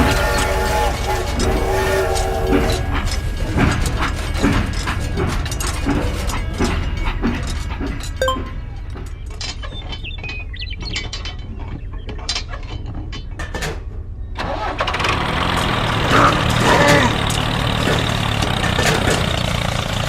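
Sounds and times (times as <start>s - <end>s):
engine starting and running: 14.4s - 20.0s.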